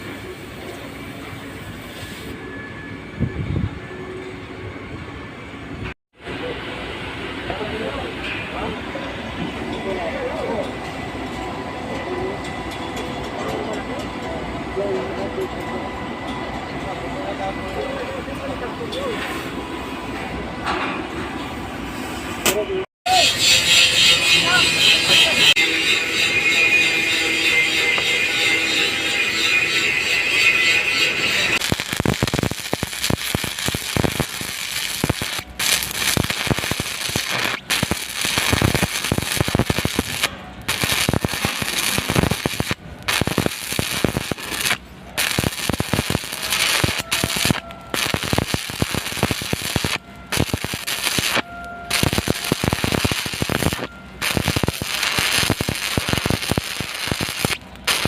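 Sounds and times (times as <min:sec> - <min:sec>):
welding arc crackling: 0:25.5 - 0:58.0.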